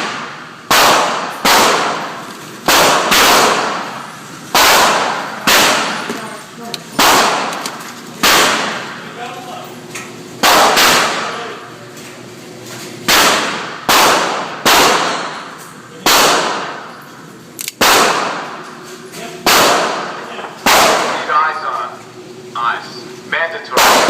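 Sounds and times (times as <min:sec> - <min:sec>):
pistol shots: 0:00.0 - 0:06.0, 0:07.0 - 0:08.9, 0:10.4 - 0:11.4, 0:13.1 - 0:15.4, 0:16.0 - 0:16.9, 0:17.8 - 0:18.6, 0:19.4 - 0:21.2, 0:23.7 - 0:24.0.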